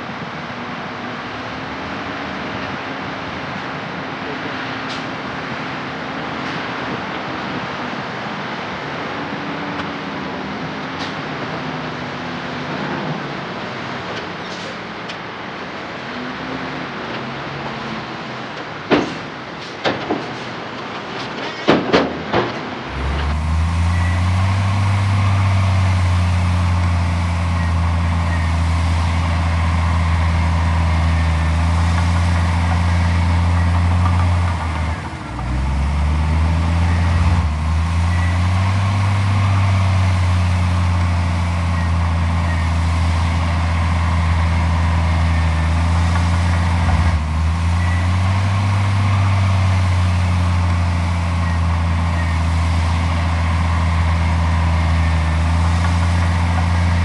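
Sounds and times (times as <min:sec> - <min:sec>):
bulldozer diesel engine running: 0:22.9 - 0:57.0.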